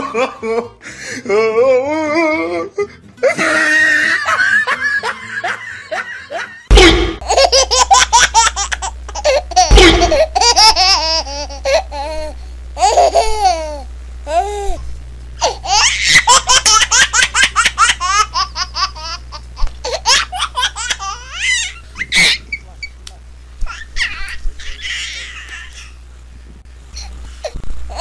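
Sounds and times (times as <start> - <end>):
baby-like giggling laughter: 3.4 - 14.4, 15.4 - 22.6.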